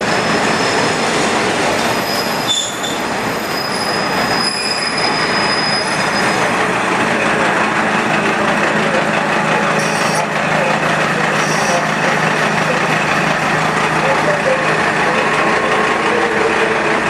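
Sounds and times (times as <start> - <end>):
railcar rolling noise: 0.0 - 17.0
high-pitched wheel squeal: 0.1 - 1.0, 1.9 - 6.5, 9.8 - 10.3, 11.2 - 12.0.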